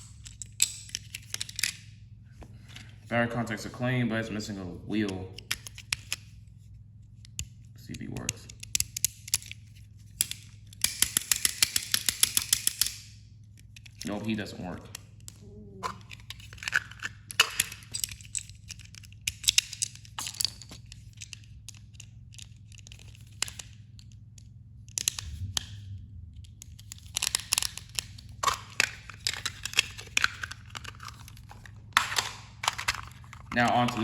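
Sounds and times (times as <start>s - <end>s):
plastic toy clicks and knocks: 7.4s - 9.6s, 10.2s - 13.1s, 14.9s - 25.8s, 26.4s - 34.0s.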